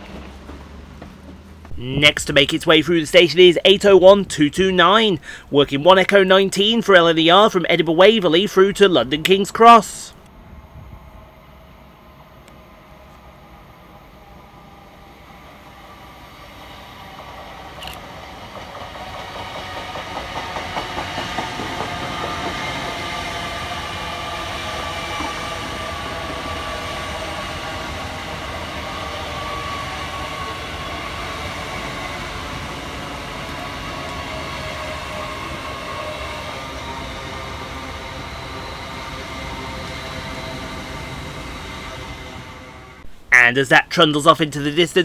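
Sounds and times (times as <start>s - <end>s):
wheels clacking over rail joints: 0.0s - 1.7s, 17.1s - 41.5s
train rumble and whine: 0.0s - 45.0s.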